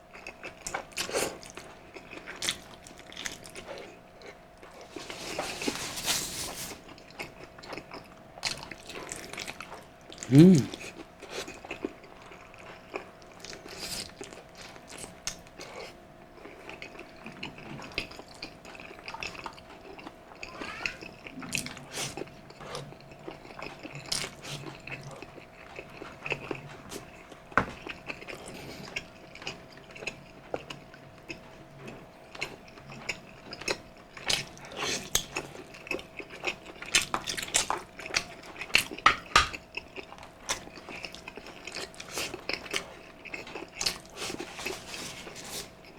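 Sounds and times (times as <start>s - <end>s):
chewing with wet mouth smacks: 0.1s - 5.5s, 6.8s - 45.9s.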